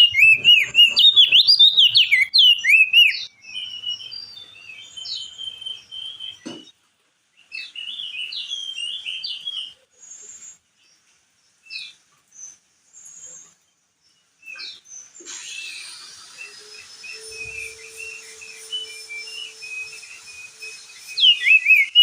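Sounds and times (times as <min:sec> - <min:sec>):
bird singing chirping notes: 0:00.0 - 0:06.5, 0:15.6 - 0:22.0.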